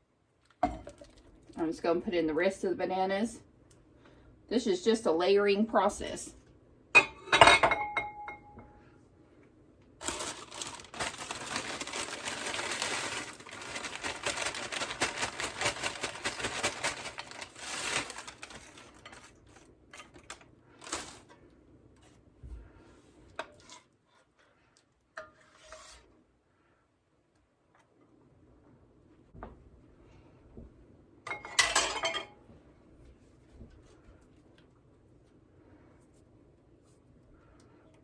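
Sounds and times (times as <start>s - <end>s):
clink against a dish: 7.0s - 8.7s
crackling rustle: 10.0s - 21.4s.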